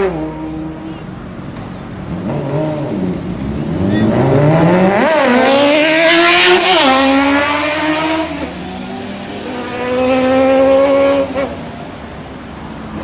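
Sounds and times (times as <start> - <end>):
motorcycle accelerating past: 2.2 - 11.6.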